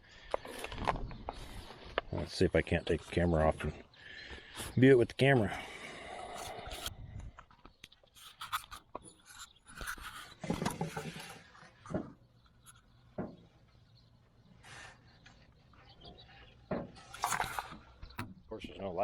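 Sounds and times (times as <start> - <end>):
camera handling noise: 6.4 - 6.9
clicks rubbing and scraping: 6.4 - 13.0, 15.3 - 18.3.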